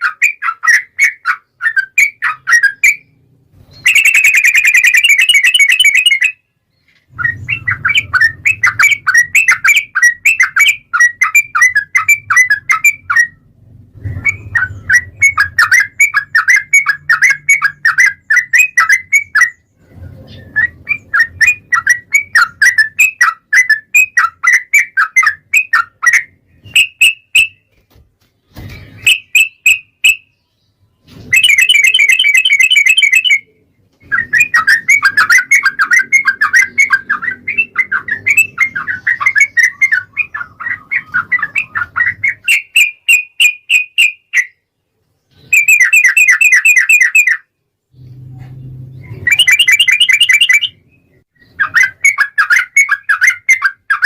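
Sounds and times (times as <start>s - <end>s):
buzzy bird trill: 0.0s - 6.5s, 28.5s - 44.6s, 45.3s - 54.0s
bird singing bubbly chatter: 0.0s - 27.7s, 28.7s - 44.6s, 45.3s - 47.5s, 48.9s - 54.0s.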